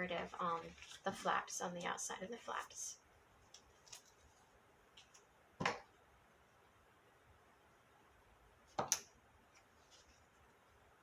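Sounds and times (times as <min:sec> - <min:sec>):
paper folding: 0:00.1 - 0:01.5, 0:03.4 - 0:05.3.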